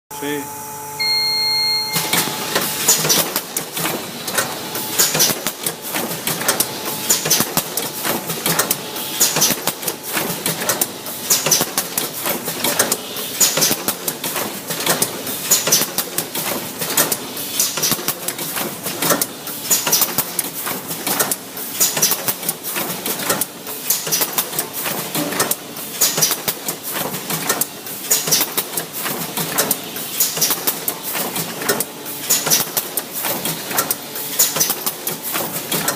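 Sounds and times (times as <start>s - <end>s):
machine stroke thump: 1.9s - 24.3s
packaging machine clattering: 2.0s - 35.9s.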